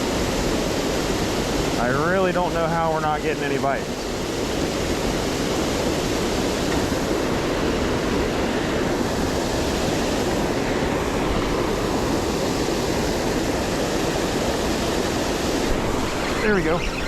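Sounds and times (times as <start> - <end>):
waterfall rushing: 5.0 - 17.0.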